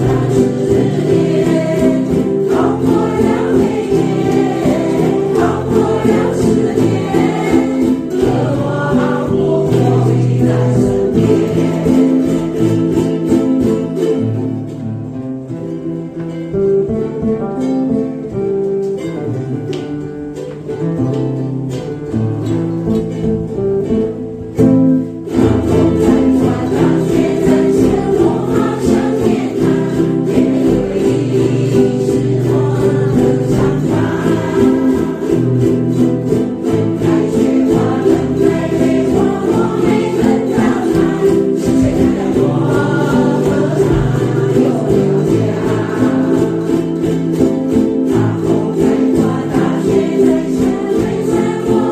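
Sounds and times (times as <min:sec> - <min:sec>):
group singing in unison: 0:00.0 - 0:14.2, 0:25.3 - 0:51.9
ukuleles playing: 0:00.0 - 0:51.9.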